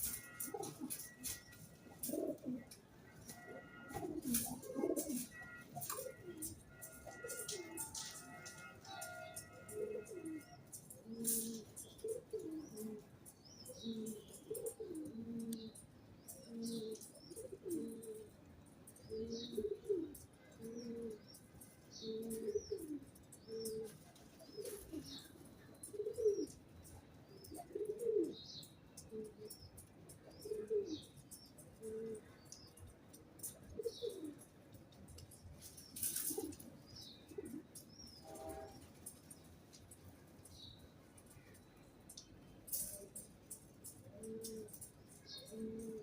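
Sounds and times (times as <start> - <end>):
pigeons cooing: 0.0 - 28.4, 29.0 - 32.8, 33.4 - 34.6, 35.2 - 39.4, 42.7 - 46.0
small birds chirping: 0.0 - 46.0
rustling: 33.4 - 41.5.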